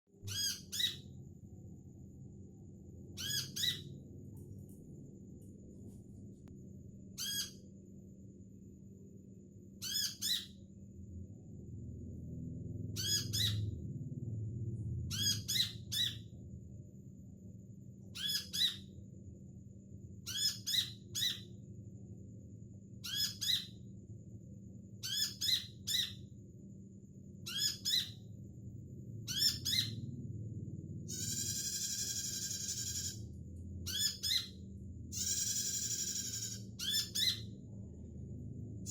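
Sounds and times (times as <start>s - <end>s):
faint steady hum: 0.1s - 38.9s
recorded bird calls: 0.2s - 1.2s, 3.1s - 4.0s, 7.2s - 7.7s, 9.8s - 10.6s, 12.9s - 13.8s, 15.1s - 16.3s, 18.1s - 19.0s, 20.2s - 21.6s, 23.0s - 23.8s, 25.0s - 26.3s, 27.4s - 28.3s, 29.2s - 30.1s, 31.0s - 37.6s.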